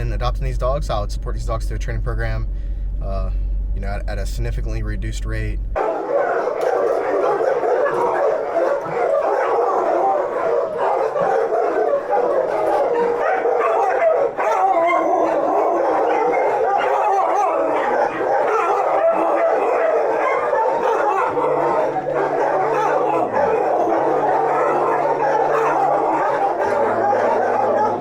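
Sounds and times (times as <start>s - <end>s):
dogs barking and howling: 5.8s - 28.0s.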